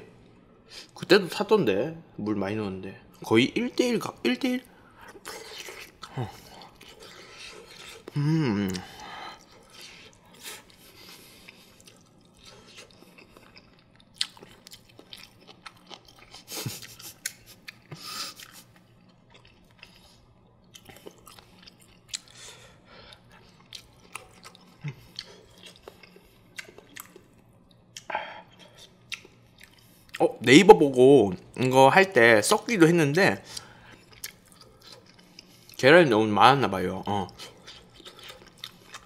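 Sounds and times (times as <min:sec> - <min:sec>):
chewing soft food: 0:04.6 - 0:30.2, 0:33.4 - 0:35.8, 0:36.9 - 0:39.0.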